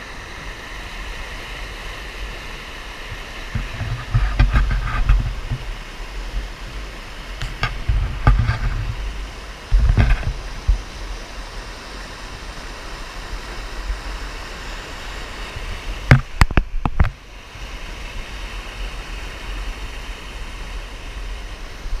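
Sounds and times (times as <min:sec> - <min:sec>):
creek water running: 0:00.0 - 0:22.0
low rumble on microphone: 0:03.2 - 0:11.0
sharp knocks: 0:16.1 - 0:17.1.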